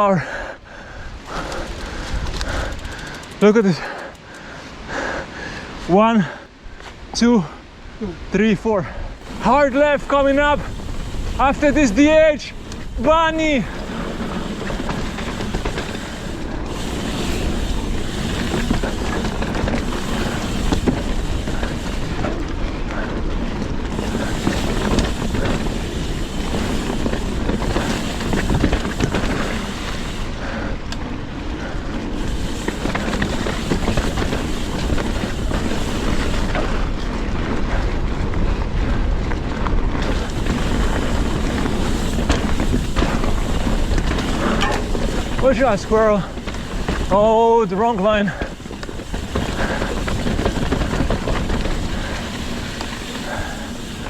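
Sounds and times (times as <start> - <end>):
mountain bike rumbling and rattling: 0.0 - 5.2, 8.9 - 54.0
wind noise on microphone: 1.0 - 3.2, 9.1 - 47.2.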